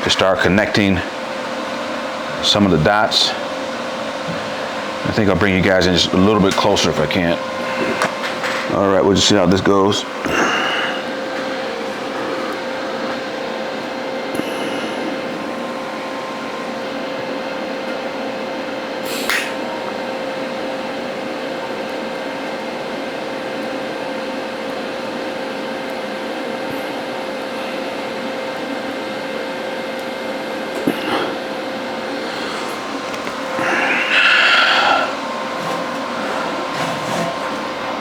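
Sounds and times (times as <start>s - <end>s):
constant hum: 0.0s - 38.0s
welding arc hissing: 19.0s - 19.6s.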